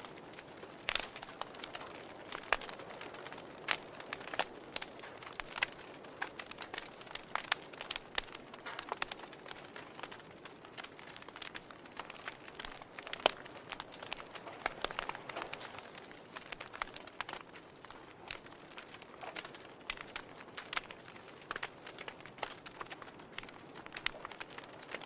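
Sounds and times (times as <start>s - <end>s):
campfire crackling: 0.0s - 25.0s.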